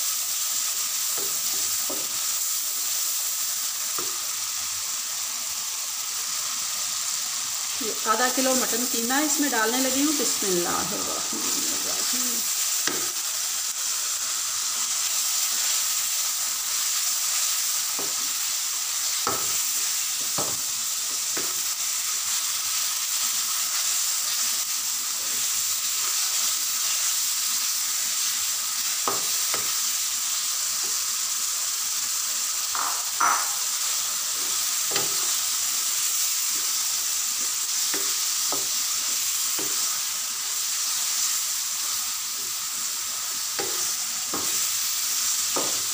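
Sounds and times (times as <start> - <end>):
meat sizzling in pan: 0.0 - 45.9
spatula knocking against pan: 32.8 - 33.6.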